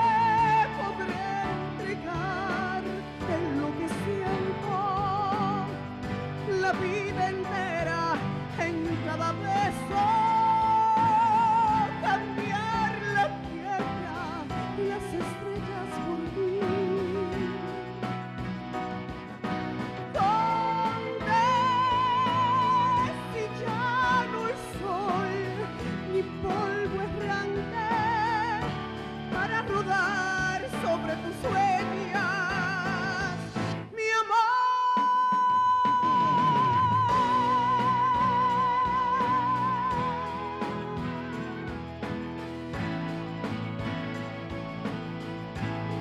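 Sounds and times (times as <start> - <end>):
woman singing with vibrato: 0.0 - 17.9, 20.1 - 41.8
instrumental accompaniment: 0.0 - 34.0, 35.6 - 46.0.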